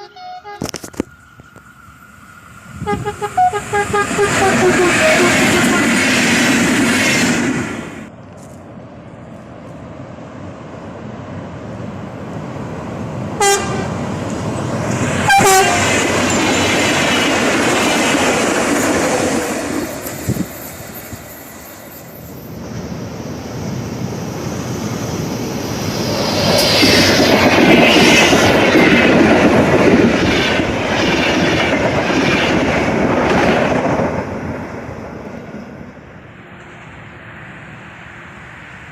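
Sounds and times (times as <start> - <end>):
train horn blasts: 0.0 - 0.8, 2.8 - 6.0, 13.4 - 14.0, 15.2 - 16.0
train rumbling on rails: 0.0 - 38.9.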